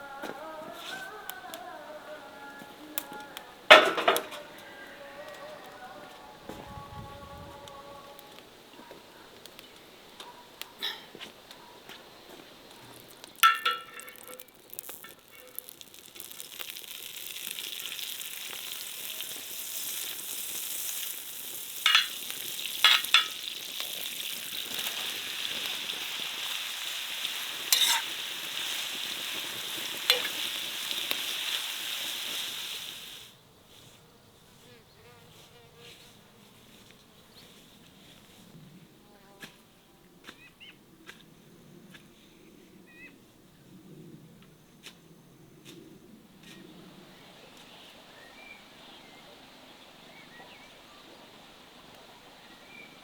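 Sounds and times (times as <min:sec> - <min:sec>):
food sizzling in hot oil: 0:13.1 - 0:33.3
metal utensil clinking on pot: 0:13.4 - 0:15.6, 0:21.8 - 0:22.2, 0:22.8 - 0:23.5, 0:27.7 - 0:28.1.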